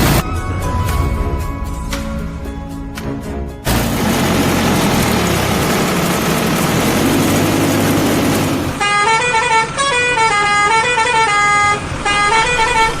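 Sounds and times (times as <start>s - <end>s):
cartoon engine rumble: 3.7s - 8.8s.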